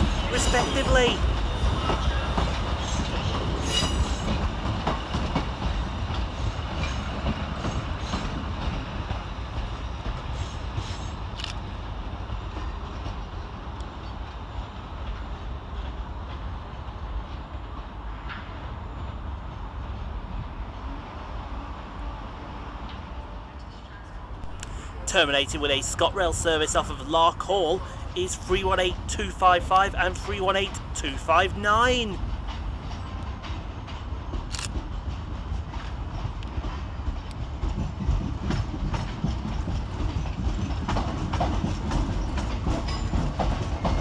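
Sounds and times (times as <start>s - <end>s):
train wheel squeal: 0.0s - 4.5s, 10.3s - 11.2s
train low rumble: 0.0s - 44.0s.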